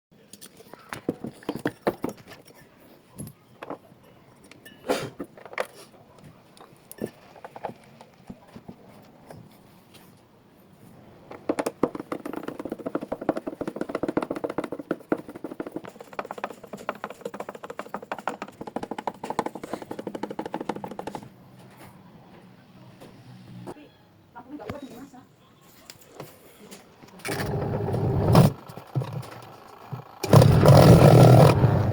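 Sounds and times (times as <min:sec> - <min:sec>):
fast clattering rattle: 0:11.5 - 0:21.2, 0:27.3 - 0:31.9.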